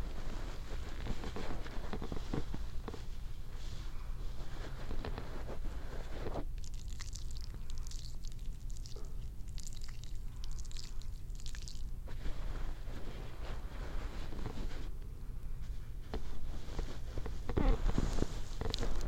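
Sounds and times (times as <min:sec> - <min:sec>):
crackly rustling of hair: 0:00.0 - 0:19.0
short hissy strokes on hair: 0:12.0 - 0:15.0.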